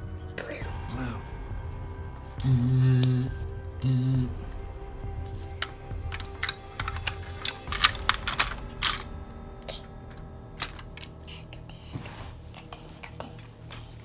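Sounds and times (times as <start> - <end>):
plastic toy pieces clattering: 5.5 - 11.7.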